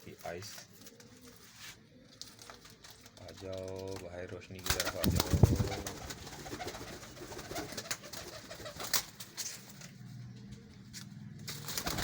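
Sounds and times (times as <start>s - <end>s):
pigeons cooing: 4.8s - 9.1s.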